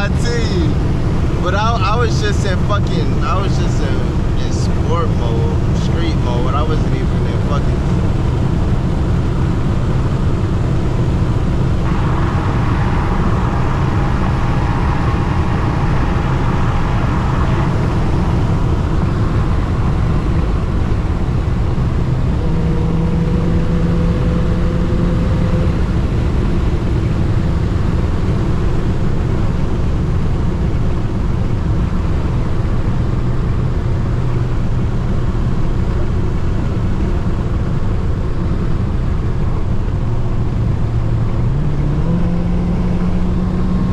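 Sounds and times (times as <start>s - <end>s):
car engine and road drone: 0.0s - 43.9s.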